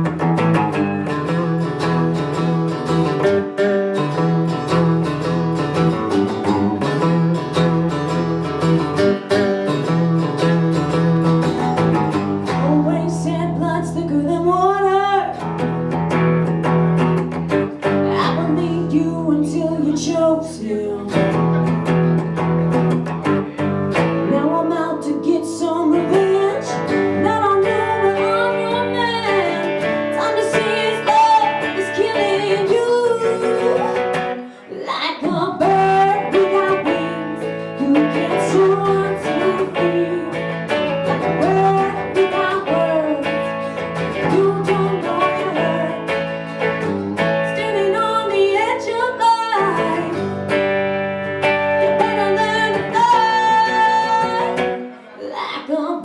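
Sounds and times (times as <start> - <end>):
strummed acoustic guitar: 0.0 - 55.2
woman singing: 12.4 - 15.7, 17.9 - 21.7, 24.2 - 50.6, 51.5 - 56.0.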